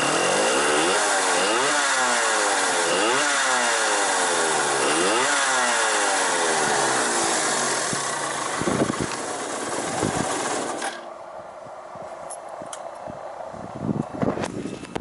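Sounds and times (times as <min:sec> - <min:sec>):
two-stroke engine running raspy: 0:00.0 - 0:11.0.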